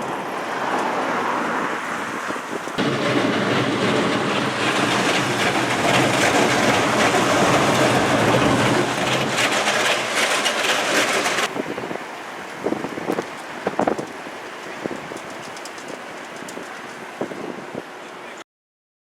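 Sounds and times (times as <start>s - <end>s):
train rumbling on rails: 0.0s - 17.9s
rapid wheel clatter: 2.8s - 11.6s.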